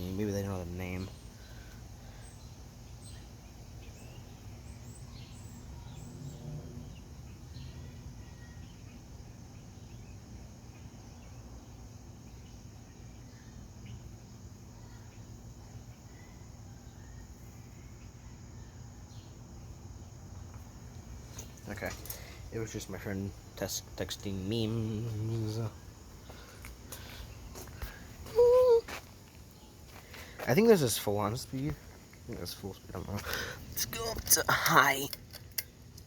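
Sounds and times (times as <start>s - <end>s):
soft air noise: 19.1s - 36.0s.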